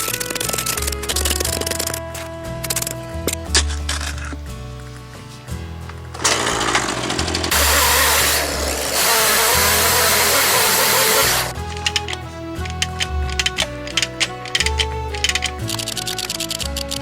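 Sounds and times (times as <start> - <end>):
background music: 0.0 - 17.0
chainsaw cutting log: 6.2 - 12.1.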